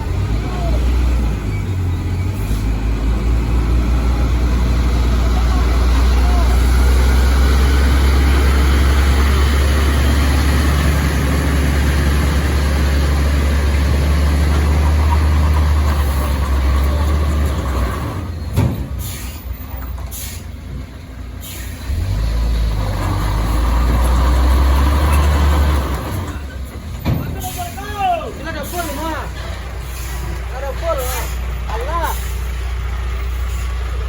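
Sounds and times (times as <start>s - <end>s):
truck diesel engine rumble: 0.0s - 34.0s
air brake hisses: 19.0s - 19.5s, 20.1s - 20.6s, 21.4s - 21.8s, 28.6s - 30.4s, 32.0s - 32.6s.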